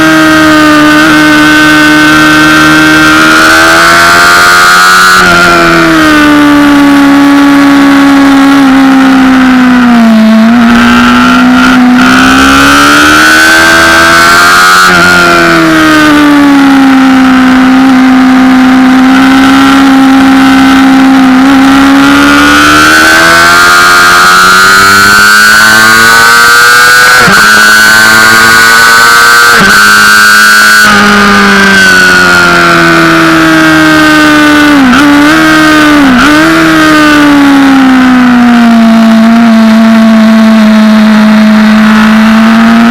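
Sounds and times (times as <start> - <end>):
motorcycle engine at high revs: 0.0 - 42.9.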